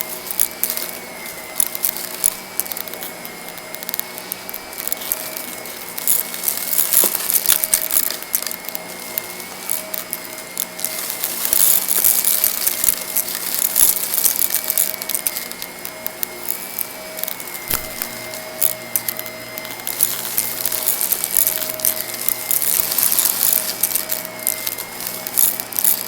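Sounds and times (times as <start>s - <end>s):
grit rattling through vacuum: 0.0s - 26.0s
vacuum cleaner motor whine: 0.0s - 26.0s.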